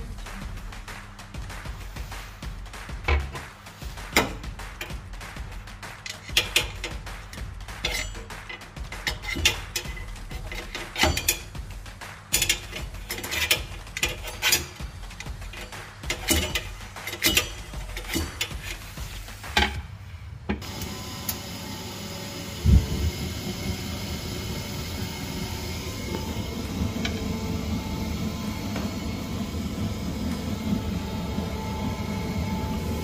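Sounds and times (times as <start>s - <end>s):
boiler fan running: 0.0s - 33.0s
sharp clicks and knocks: 6.0s - 11.6s, 12.3s - 19.8s.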